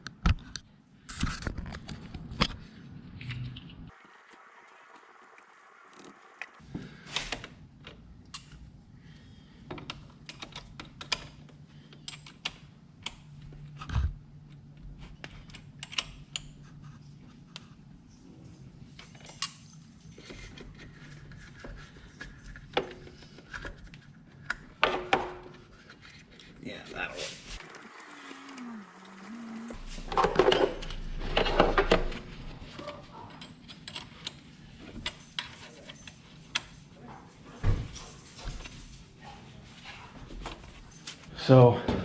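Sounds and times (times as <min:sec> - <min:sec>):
hand tools clicking and clinking: 0:27.6 - 0:31.0, 0:33.3 - 0:37.0
low steady hum: 0:27.6 - 0:33.2.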